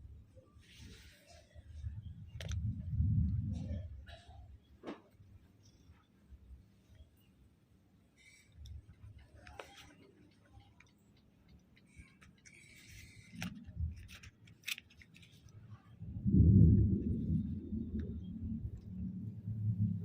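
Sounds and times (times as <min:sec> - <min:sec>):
faint clicks: 0:08.5 - 0:15.6
deep thunder rumble: 0:16.0 - 0:20.0.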